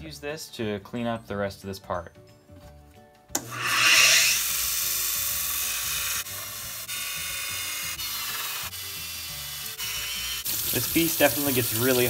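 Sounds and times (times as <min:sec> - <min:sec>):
belt sander grinding metal: 0:03.4 - 0:10.4.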